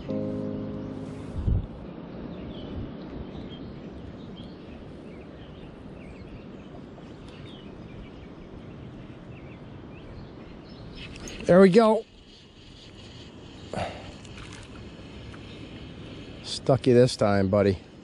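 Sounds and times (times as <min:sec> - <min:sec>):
faint bird chirps: 0:00.0 - 0:14.6
wind: 0:00.0 - 0:18.0
moving water: 0:08.5 - 0:17.9.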